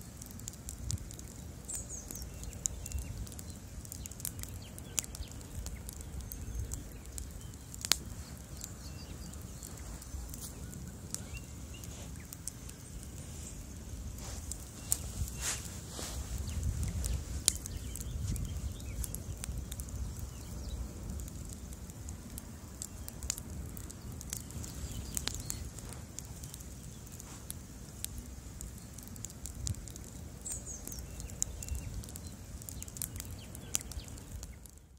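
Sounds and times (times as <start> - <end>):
burning wood crackling: 0.0 - 34.9
fire low rumble: 0.0 - 34.9.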